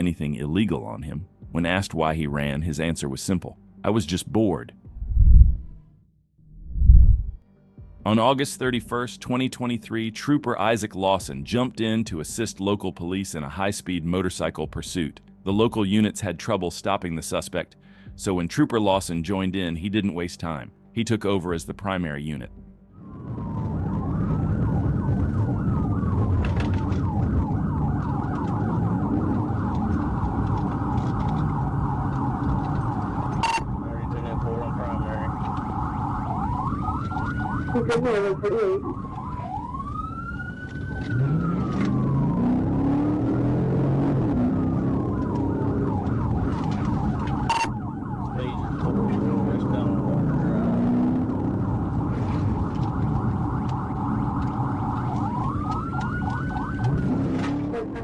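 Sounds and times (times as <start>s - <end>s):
car engine and road noise: 4.8s - 7.4s, 23.0s - 58.0s
police siren wailing and yelping: 23.0s - 58.0s.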